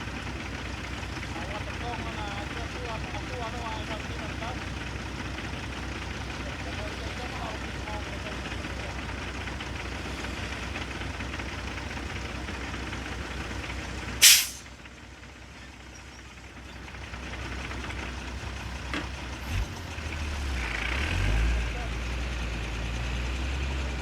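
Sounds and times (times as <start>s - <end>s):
diesel truck engine running: 0.0s - 24.0s
air brake hiss: 14.2s - 14.7s.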